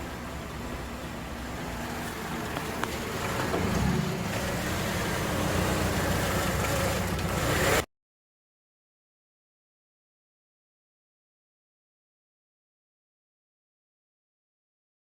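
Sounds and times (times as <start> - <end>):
car engine running: 0.0 - 7.9.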